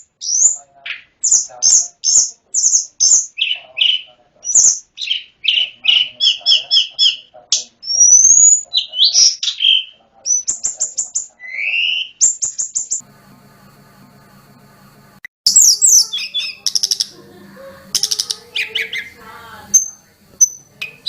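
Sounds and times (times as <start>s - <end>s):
songbird singing: 0.0s - 13.0s, 15.5s - 21.0s
faint low hum: 13.0s - 21.0s.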